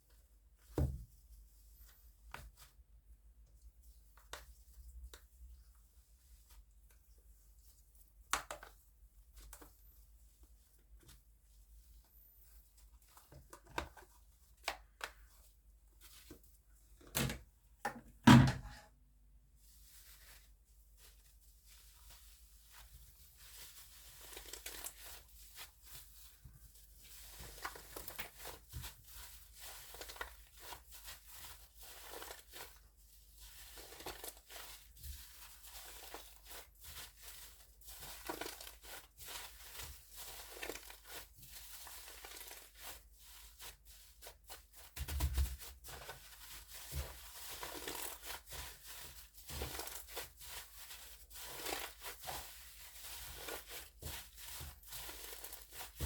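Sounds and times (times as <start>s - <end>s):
slime squishing and crackling: 27.0s - 56.0s.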